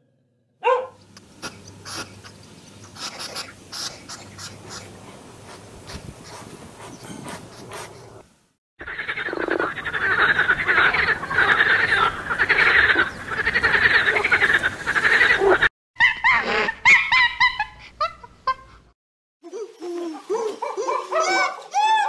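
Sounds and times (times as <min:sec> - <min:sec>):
frogs croaking chorus: 0:08.8 - 0:15.7
animal repeated pitched calls: 0:08.8 - 0:17.2.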